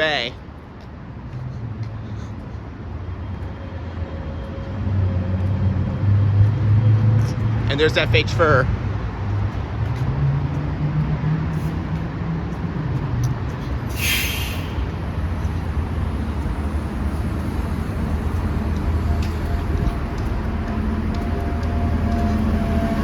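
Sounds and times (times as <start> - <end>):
bus engine idling: 11.6 - 23.0
air brake hiss: 13.9 - 15.1.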